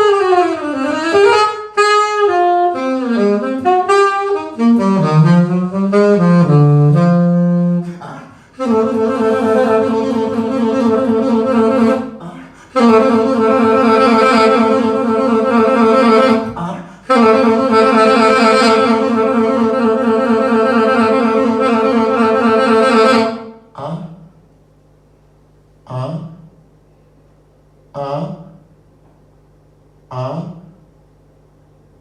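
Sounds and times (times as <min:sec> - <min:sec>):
solo instrument holding long notes: 0:00.0 - 0:23.5.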